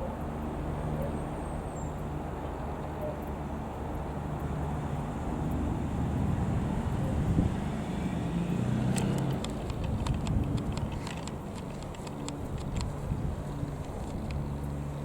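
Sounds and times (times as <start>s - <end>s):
light aircraft engine droning: 0.0s - 15.0s.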